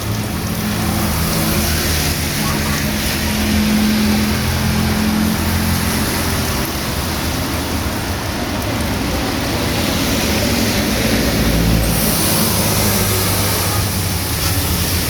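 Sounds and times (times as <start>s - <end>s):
heavy rain on a street: 0.0s - 15.0s
vehicle passing on wet road: 0.0s - 15.0s.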